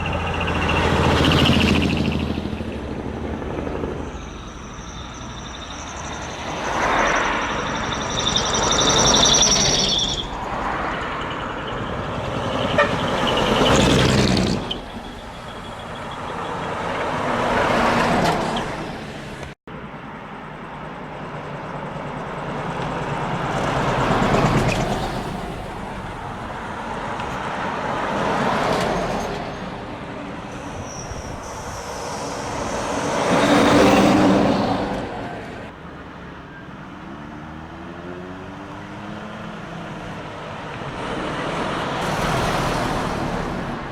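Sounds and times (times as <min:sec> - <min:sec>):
trucks driving past: 0:00.0 - 0:43.9
horn tone: 0:12.4 - 0:14.1.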